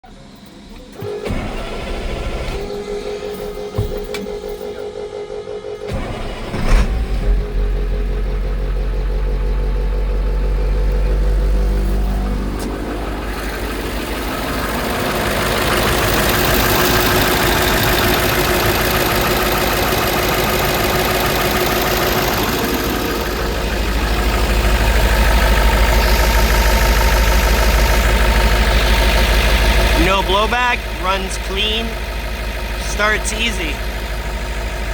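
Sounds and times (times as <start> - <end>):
diesel truck engine running: 0.0 - 34.9.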